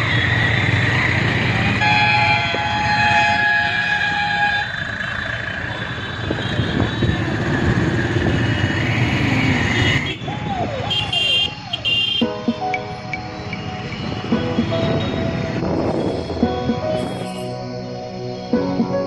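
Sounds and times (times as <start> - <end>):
traffic engine drone: 0.0 - 19.0
vehicle horn chord: 10.9 - 12.8.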